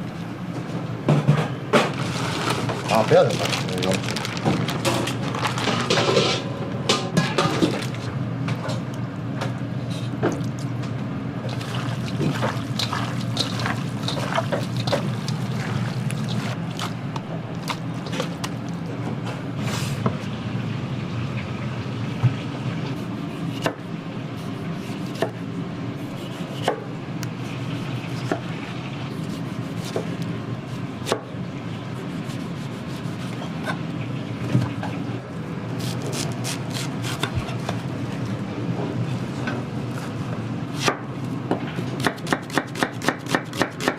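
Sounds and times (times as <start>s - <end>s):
steady low hum: 0.0s - 42.2s
liquid being handled: 2.0s - 5.8s, 11.5s - 18.8s.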